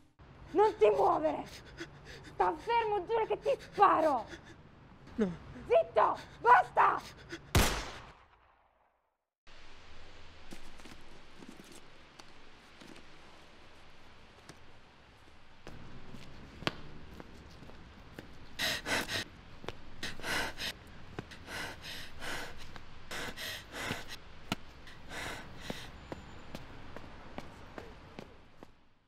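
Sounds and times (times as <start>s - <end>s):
person gasping breaths: 1.4s - 2.7s, 3.4s - 7.6s, 18.6s - 19.3s, 20.0s - 24.2s, 24.9s - 26.0s.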